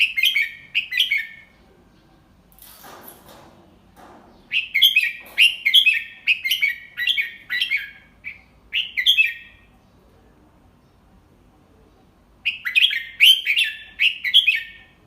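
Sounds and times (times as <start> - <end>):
bird singing whistled notes: 4.4 - 9.6, 12.4 - 14.8.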